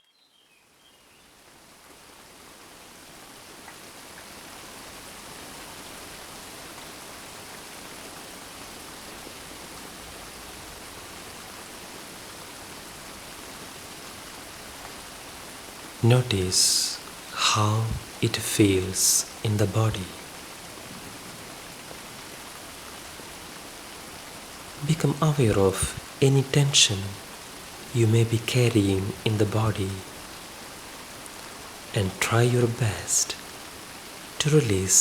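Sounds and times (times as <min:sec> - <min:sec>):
gentle rain falling: 0:00.0 - 0:35.0.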